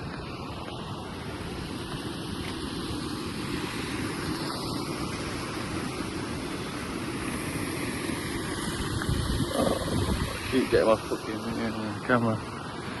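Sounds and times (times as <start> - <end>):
wind buffeting microphone: 8.1 - 11.8.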